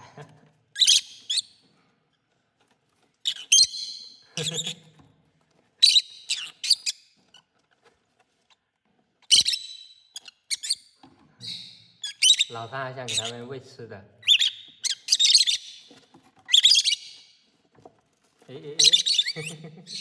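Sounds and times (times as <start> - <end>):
parrots squawking: 0.8 - 1.6, 3.2 - 5.0, 5.8 - 7.0, 9.2 - 13.4, 14.2 - 15.9, 16.5 - 17.3, 18.8 - 20.0.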